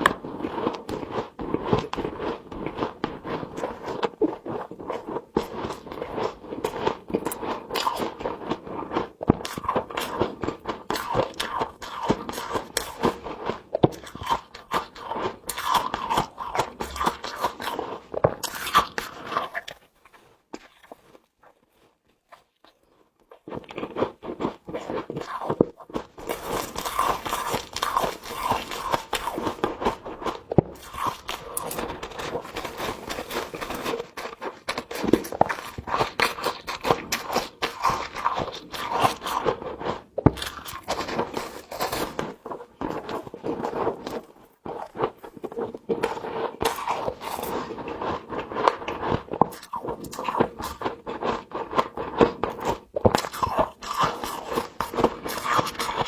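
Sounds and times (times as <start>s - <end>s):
frost crunching between teeth: 0.0s - 56.0s
frost being scraped: 26.2s - 39.7s.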